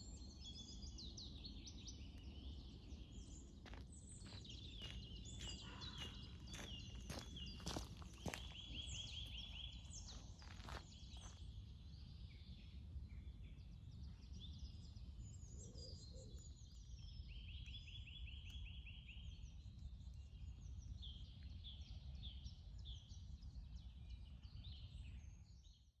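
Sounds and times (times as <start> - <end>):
songbirds chirping and whistling: 0.4 - 11.4.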